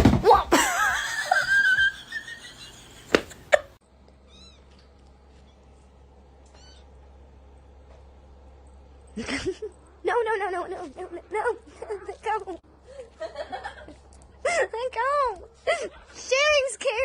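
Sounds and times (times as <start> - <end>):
faint steady hum: 0.4 - 17.0
cat meowing: 4.3 - 4.7.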